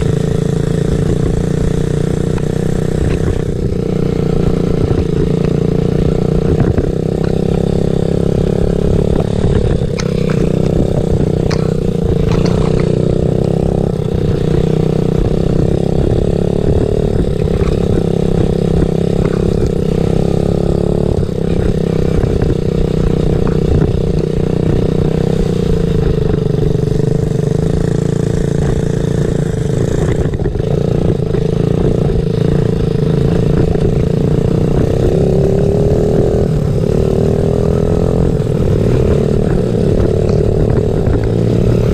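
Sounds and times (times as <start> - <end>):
dirt-bike engine running: 0.0 - 41.9
clicks and clatter: 9.5 - 13.0.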